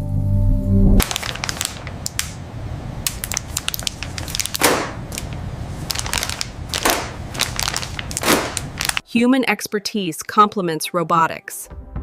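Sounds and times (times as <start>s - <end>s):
music: 0.0s - 1.0s, 9.8s - 12.0s
dense crunching and crackling: 1.0s - 9.0s.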